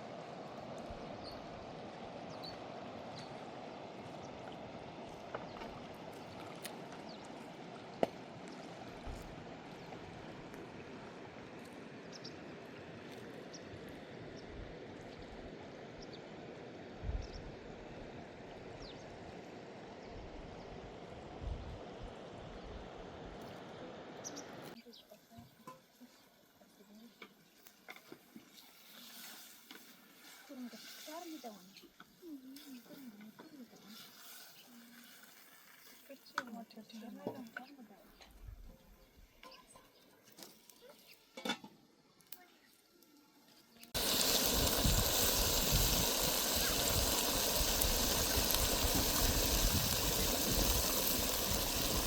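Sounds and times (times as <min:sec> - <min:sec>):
running water: 0:00.0 - 0:13.9, 0:43.9 - 0:52.0.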